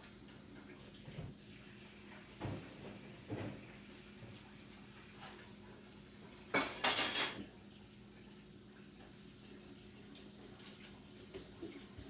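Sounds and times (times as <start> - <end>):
bowl clattering against dishes: 6.6 - 7.4.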